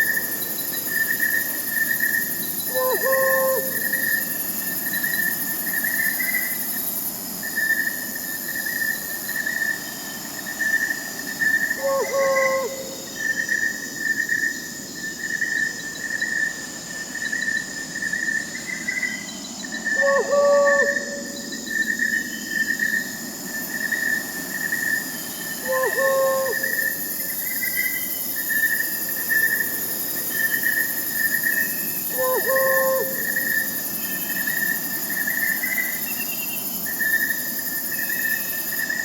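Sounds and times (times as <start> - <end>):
crickets chirring: 0.0 - 39.0.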